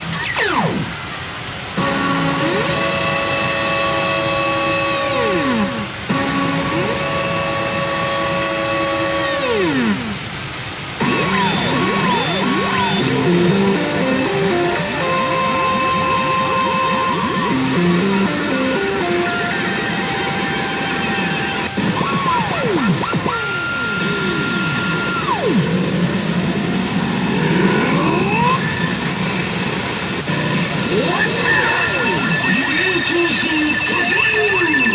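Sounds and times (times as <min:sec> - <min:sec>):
electronic machine jingle: 0:00.0 - 0:10.0, 0:11.0 - 0:25.7, 0:30.3 - 0:34.9
constant mechanical din: 0:00.0 - 0:34.9
rising sweeping tones: 0:00.0 - 0:34.9
held synth tone: 0:01.7 - 0:10.2, 0:11.0 - 0:25.7, 0:30.3 - 0:34.9.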